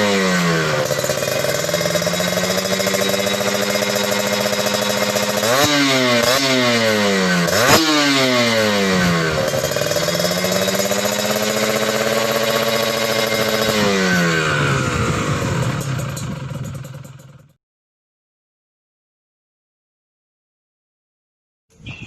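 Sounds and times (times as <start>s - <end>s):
motorcycle engine revving: 0.0s - 17.6s.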